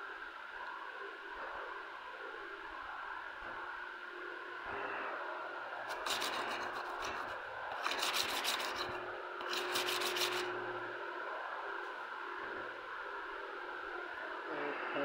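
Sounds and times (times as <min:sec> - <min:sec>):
steady background hiss: 0:00.0 - 0:15.0
rubbing scratching noise: 0:05.9 - 0:10.6.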